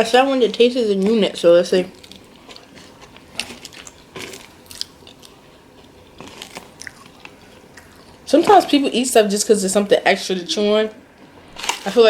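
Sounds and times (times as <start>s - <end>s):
person chewing food: 1.9s - 8.8s
wet mouth clicks and smacks: 6.2s - 8.3s.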